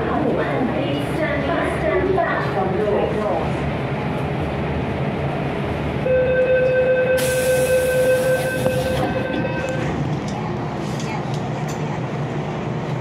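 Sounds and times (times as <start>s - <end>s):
train carriage low rumble: 0.0s - 13.0s
loud air hiss: 7.2s - 8.8s.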